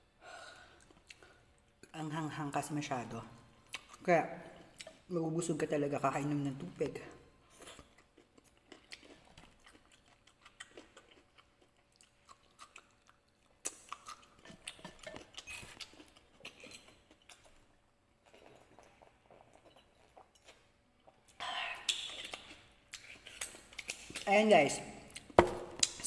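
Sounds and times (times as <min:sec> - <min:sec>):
man chewing: 0:00.6 - 0:01.8, 0:07.4 - 0:24.2
soft mouth clicks: 0:21.3 - 0:24.3.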